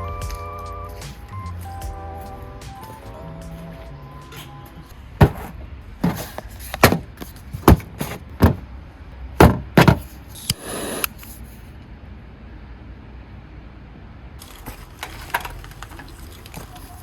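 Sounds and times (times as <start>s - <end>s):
sharp knocks: 5.2s - 6.2s, 6.8s - 8.6s, 9.4s - 10.1s.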